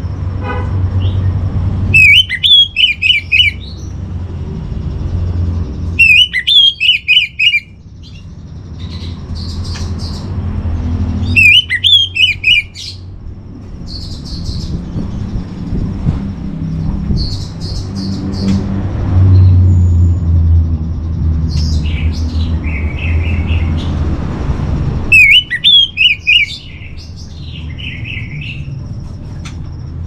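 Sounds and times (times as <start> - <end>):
thrush singing whistled notes: 1.9 - 4.0, 5.8 - 10.3, 11.1 - 13.1, 25.0 - 28.9.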